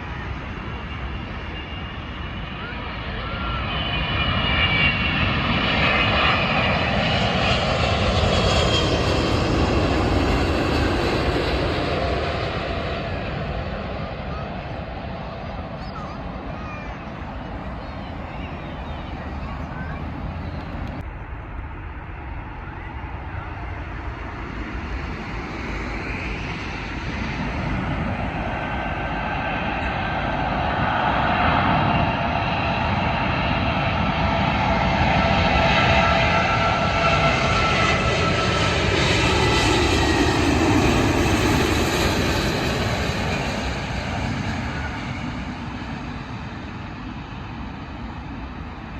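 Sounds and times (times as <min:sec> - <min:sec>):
jet engines passing close: 0:00.0 - 0:48.9
steady whining tones: 0:15.4 - 0:30.6.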